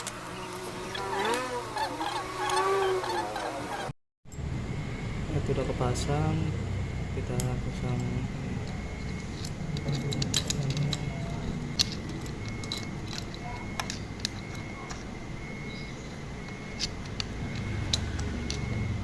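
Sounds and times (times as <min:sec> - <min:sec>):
faint steady high tone: 0:04.3 - 0:19.0
metallic clicks of tools: 0:07.4 - 0:15.1, 0:16.1 - 0:18.9.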